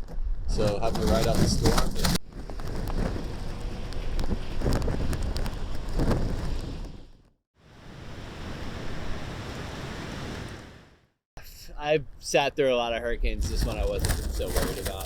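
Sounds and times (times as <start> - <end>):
wind gusting against microphone: 0.4 - 11.0, 13.2 - 15.0
rain: 7.7 - 11.0.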